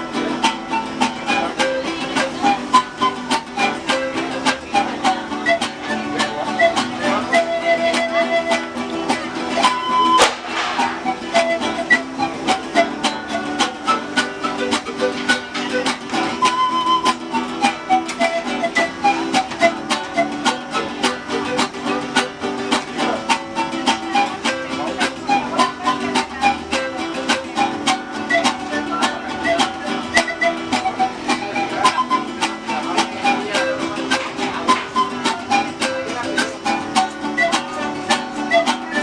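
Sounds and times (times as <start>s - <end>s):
strummed plucked string music: 0.0s - 39.0s
sharp click: 10.2s - 10.9s.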